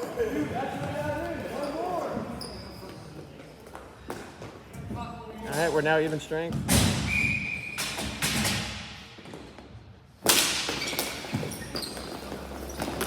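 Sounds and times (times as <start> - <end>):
loud sharp crack: 10.2 - 11.1
hockey sticks and ball knocking: 10.2 - 13.0.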